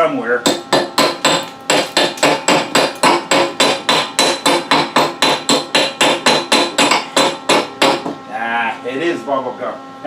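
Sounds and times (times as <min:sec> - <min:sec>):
chisel chipping metal: 0:00.4 - 0:08.2.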